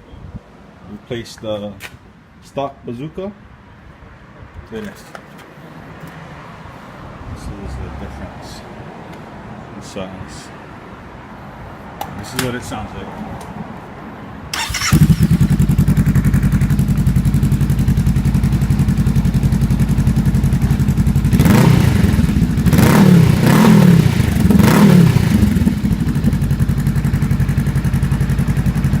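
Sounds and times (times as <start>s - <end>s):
motorcycle engine revving: 14.5s - 29.0s
motorcycle engine idling: 14.6s - 29.0s.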